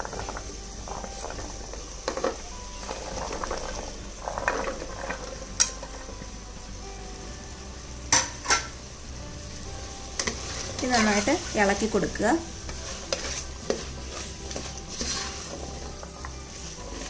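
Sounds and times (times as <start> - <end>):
vegetables clattering into pot: 0.0 - 6.0, 8.1 - 8.8
light sizzle: 0.0 - 17.0.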